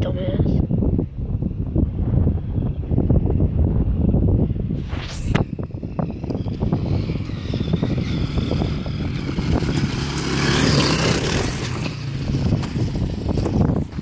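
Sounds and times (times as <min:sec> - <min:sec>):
dirt bike engine running: 0:05.4 - 0:14.0.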